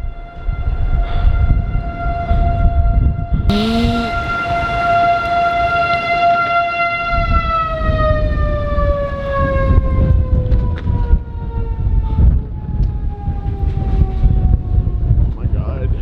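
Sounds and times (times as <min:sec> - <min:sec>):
warning siren winding down: 0:03.5 - 0:09.2.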